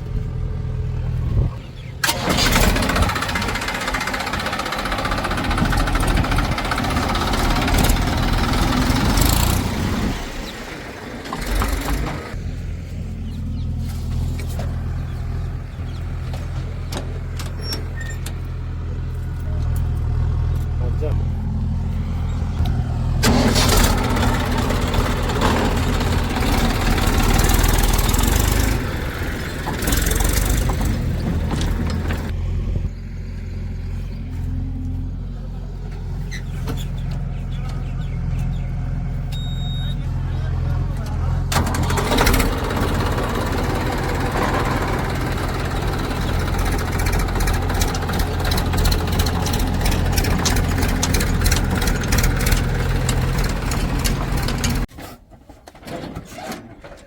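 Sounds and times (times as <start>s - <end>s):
heavy diesel engine running: 0.0s - 54.9s
low engine hum: 0.0s - 54.9s
loud rough rushing noise: 41.5s - 54.9s.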